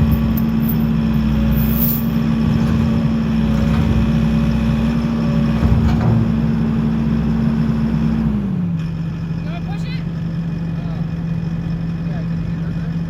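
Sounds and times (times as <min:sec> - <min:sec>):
metal clanks: 0:00.0 - 0:06.7.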